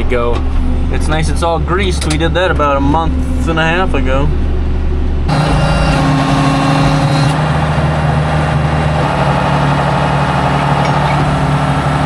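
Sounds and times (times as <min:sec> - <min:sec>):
tractor engine idling: 0:05.3 - 0:12.0.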